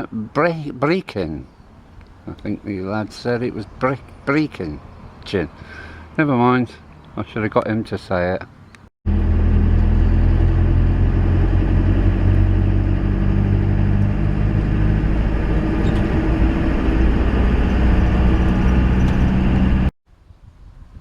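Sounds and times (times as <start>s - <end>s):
road noise: 0.0s - 19.9s
van engine running: 9.1s - 19.9s.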